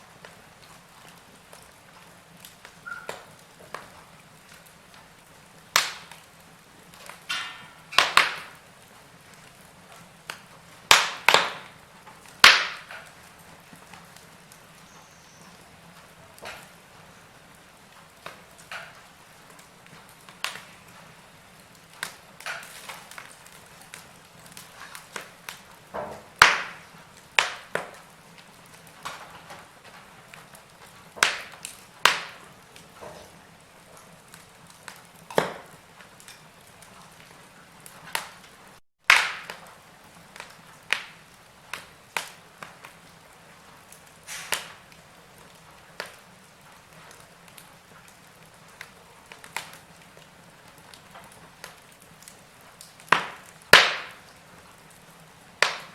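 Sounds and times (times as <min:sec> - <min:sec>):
faint steady hiss: 0:00.0 - 0:55.9
fire pops and snaps: 0:00.0 - 0:55.9
wood fire crackling: 0:00.0 - 0:55.9.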